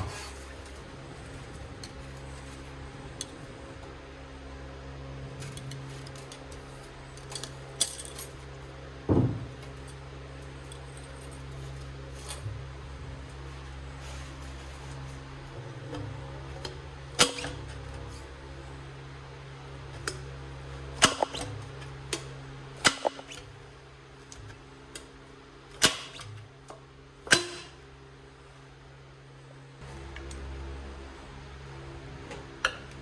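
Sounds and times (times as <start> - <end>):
steady low hum: 0.0 - 33.0
metallic knocks and clanks: 9.1 - 9.8.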